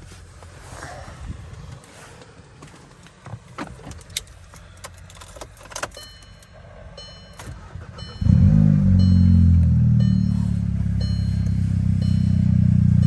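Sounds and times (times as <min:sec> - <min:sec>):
car engine starting and running: 0:00.1 - 0:13.0
keys and door clicks: 0:03.8 - 0:06.5
electronic warning chime: 0:06.0 - 0:13.0.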